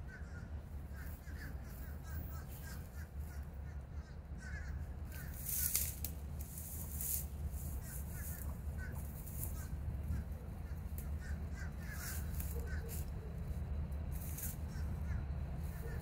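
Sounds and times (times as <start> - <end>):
birds calling: 0.0 - 16.0
low rumble: 0.0 - 16.0.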